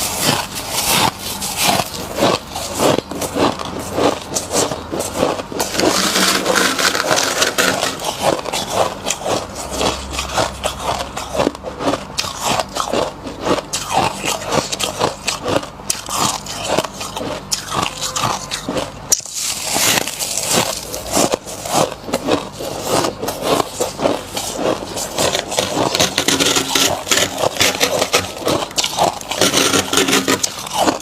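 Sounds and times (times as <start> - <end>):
fingers scraping frost: 0.0 - 10.3, 19.4 - 31.0
teeth crunching frost: 0.0 - 31.0.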